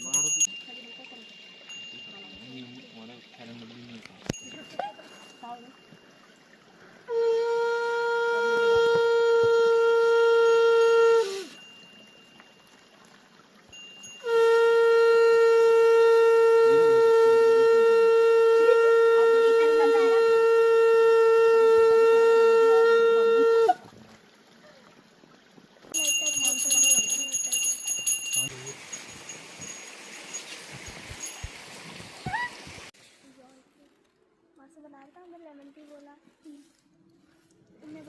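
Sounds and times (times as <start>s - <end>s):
conch shell blown: 7.0s - 11.8s, 14.1s - 23.9s.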